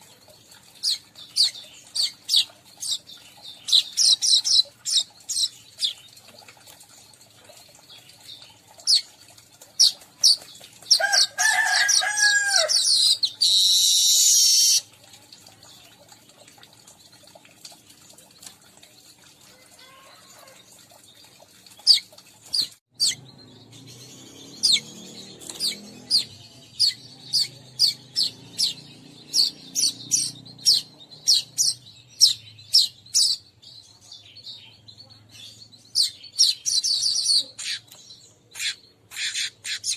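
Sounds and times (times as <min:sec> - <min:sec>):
weaverbirds chirping: 0:00.0 - 0:06.8, 0:21.2 - 0:39.9
harsh buzzing bird chatter: 0:00.0 - 0:14.9, 0:19.6 - 0:33.5, 0:35.5 - 0:39.9.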